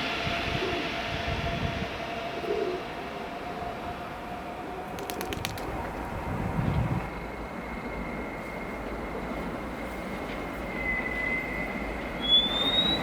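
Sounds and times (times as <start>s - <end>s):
high-pitched whine: 0.0s - 5.0s
train running on tracks: 0.0s - 13.0s.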